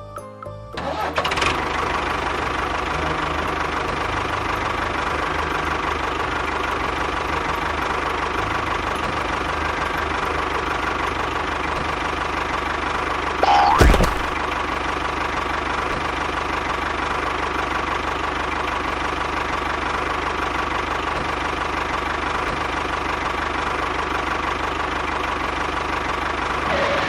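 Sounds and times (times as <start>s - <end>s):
small engine running: 0.8s - 27.0s.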